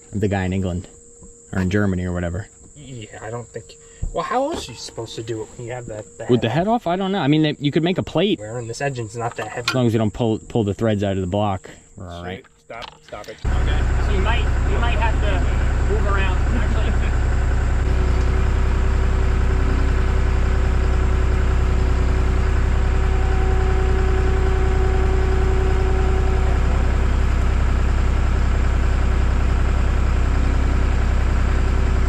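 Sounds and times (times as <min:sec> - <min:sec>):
steady whine: 0:00.0 - 0:32.0
diesel engine running steadily: 0:13.4 - 0:32.0.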